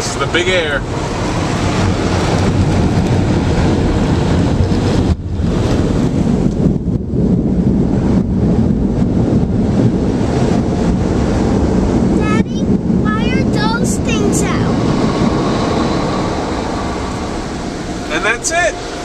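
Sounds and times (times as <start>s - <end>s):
air dryer blowers blasting: 8.6s - 19.0s.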